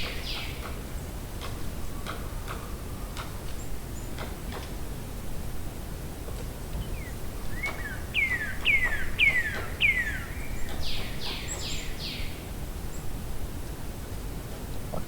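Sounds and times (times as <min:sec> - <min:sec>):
songbird singing whistled notes: 0:06.8 - 0:12.3.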